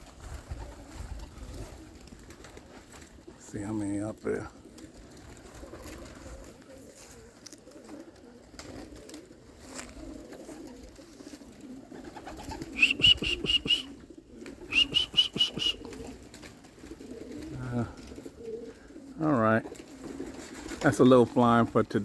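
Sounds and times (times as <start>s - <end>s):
pigeons cooing: 0.0s - 21.6s
high sharp bird call notes: 12.7s - 14.0s, 14.7s - 15.8s.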